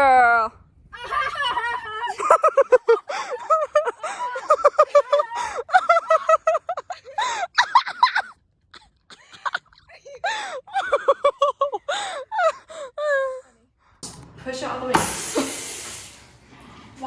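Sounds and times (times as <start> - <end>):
women laughing and squealing: 0.9 - 13.6.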